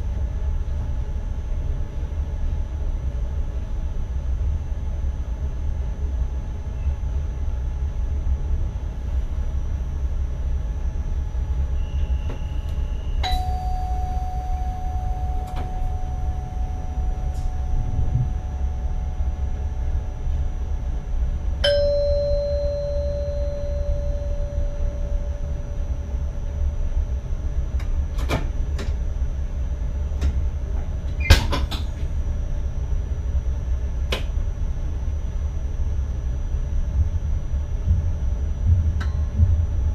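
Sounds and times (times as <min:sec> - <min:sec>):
train cab rumble: 0:00.0 - 0:34.5
chime ringing: 0:13.2 - 0:19.7, 0:21.6 - 0:25.9.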